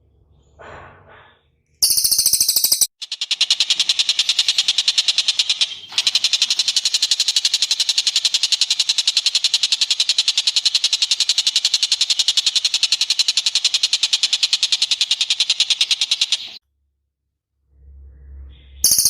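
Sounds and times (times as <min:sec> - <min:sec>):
fast high bird chatter: 0:01.8 - 0:16.6.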